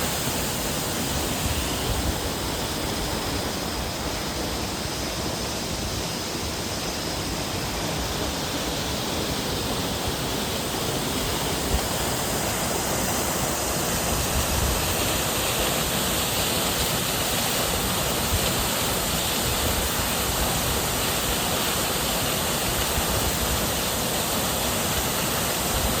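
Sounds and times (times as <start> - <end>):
waterfall pouring: 6.4 - 26.0.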